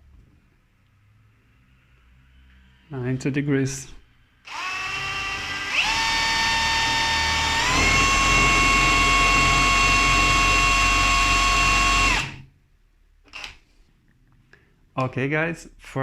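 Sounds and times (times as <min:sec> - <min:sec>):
cordless drill motor whine: 0:04.5 - 0:12.4.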